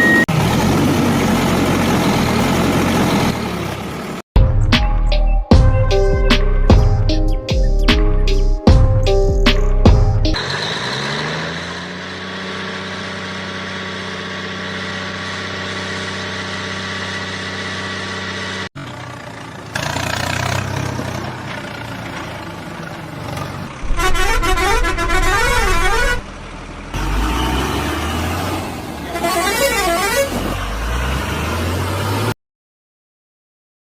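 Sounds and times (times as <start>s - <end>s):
vehicle rumbling: 0.0s - 4.2s, 8.3s - 32.4s
vehicle horn blast: 23.8s - 26.3s, 29.1s - 30.4s
warbling siren: 23.8s - 26.3s.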